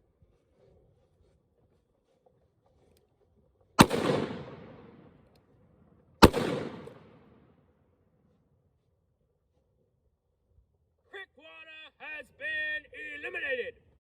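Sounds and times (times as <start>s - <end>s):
gunshot echo: 3.8s - 5.2s, 6.2s - 7.5s
revolver gunshots: 3.8s - 5.2s, 6.2s - 7.4s.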